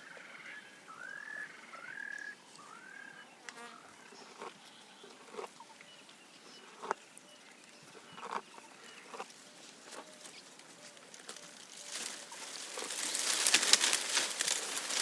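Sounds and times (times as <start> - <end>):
leaves being stripped and chewed: 9.1 - 15.0.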